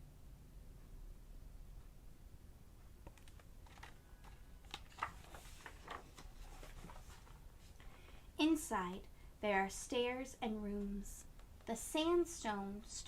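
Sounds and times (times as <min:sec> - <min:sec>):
book pages turning: 0:03.1 - 0:07.8.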